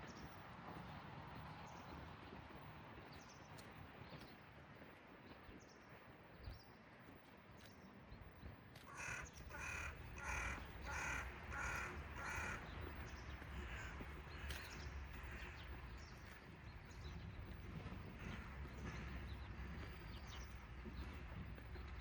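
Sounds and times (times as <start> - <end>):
bird calling: 8.9 - 15.8
steady low rumble: 9.5 - 22.0.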